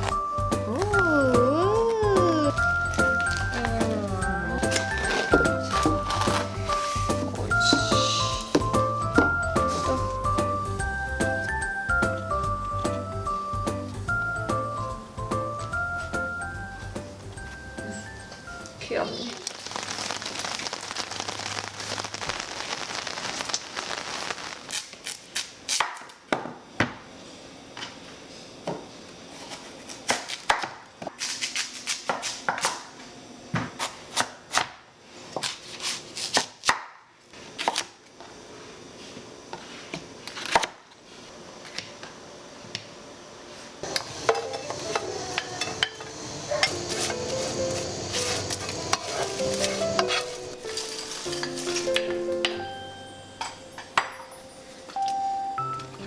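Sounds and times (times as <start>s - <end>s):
steady hiss: 5.5s - 11.1s, 12.4s - 25.1s, 43.4s - 56.0s.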